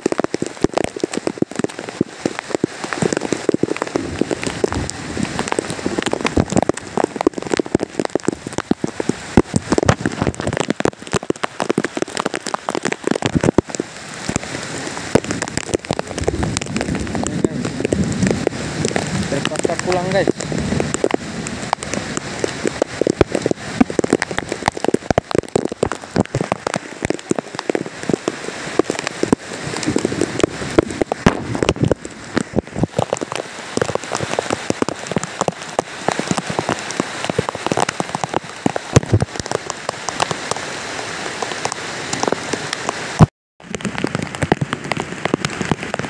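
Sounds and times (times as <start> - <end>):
heavy rain downpour: 0.0 - 46.0.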